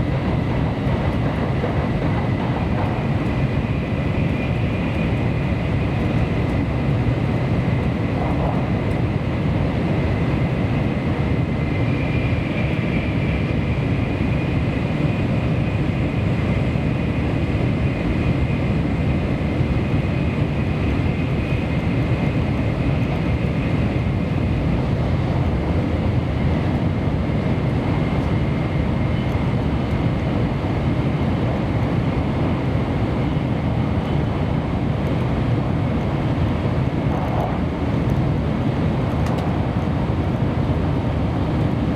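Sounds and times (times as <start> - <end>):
train running rumble: 0.0 - 41.9.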